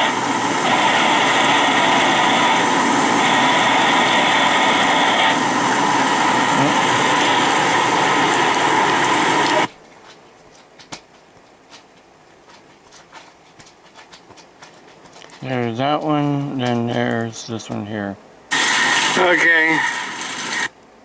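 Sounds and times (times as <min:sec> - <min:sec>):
heavy rain and wind: 0:00.0 - 0:09.7, 0:18.5 - 0:20.7.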